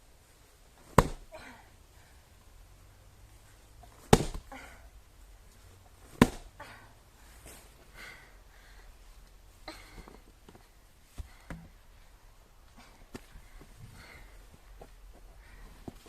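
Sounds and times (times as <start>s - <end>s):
axe chopping firewood: 0.8s - 1.3s, 4.0s - 4.5s, 6.1s - 6.5s.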